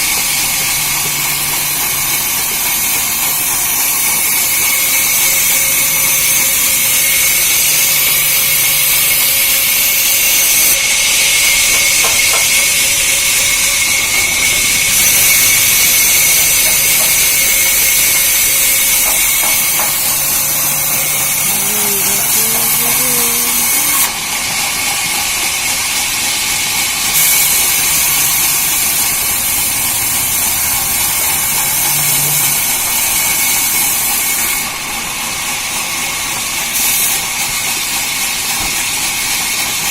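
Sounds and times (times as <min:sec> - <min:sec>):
sawmill saw hissing and whining: 0:00.0 - 0:39.9.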